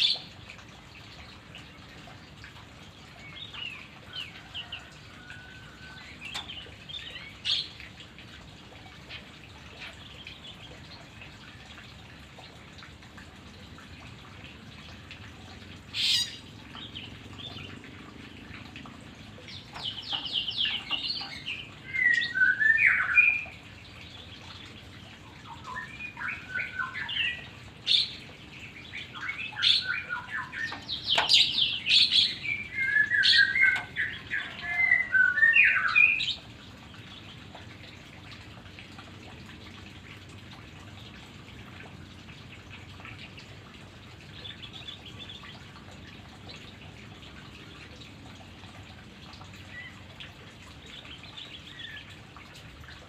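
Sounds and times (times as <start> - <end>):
bird singing whistles and trills: 19.8 - 23.5, 25.4 - 28.1, 28.9 - 36.4.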